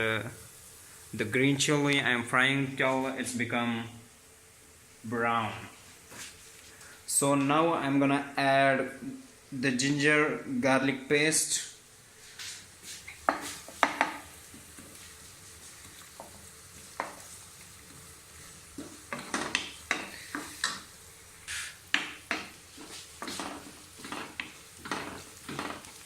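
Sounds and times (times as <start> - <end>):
food sizzling: 0.0 - 26.0
spoon scraping a frying pan: 18.8 - 20.9, 21.5 - 26.0.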